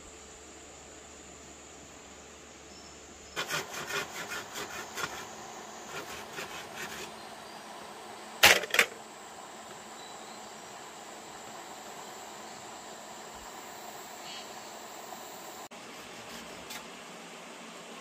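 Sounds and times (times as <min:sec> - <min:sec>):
rasping strokes on wood: 0:03.4 - 0:07.2, 0:15.8 - 0:16.9.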